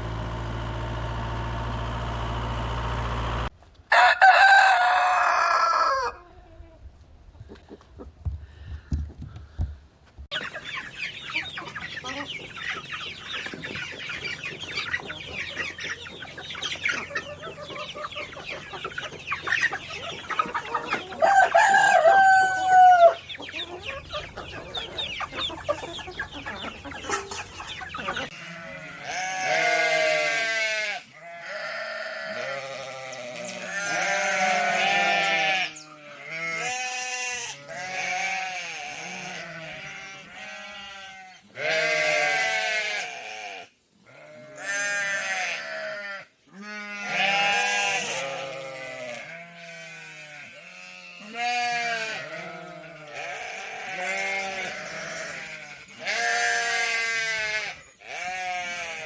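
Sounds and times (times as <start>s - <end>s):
poultry clucking: 7.3s - 9.0s, 10.3s - 59.0s
livestock bleating: 28.0s - 59.0s.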